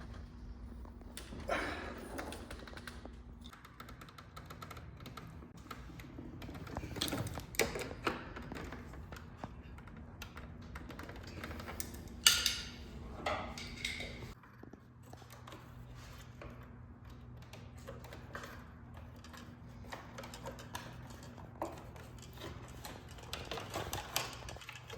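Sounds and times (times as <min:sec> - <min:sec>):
tools clicking and knocking: 0:02.1 - 0:14.4, 0:17.3 - 0:24.9.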